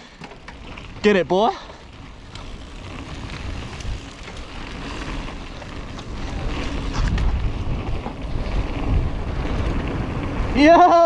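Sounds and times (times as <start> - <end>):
bike clicks and rattles: 0.0 - 11.0
bike tyres rumbling on dirt trail: 0.0 - 11.0
wind on microphone: 2.6 - 11.0.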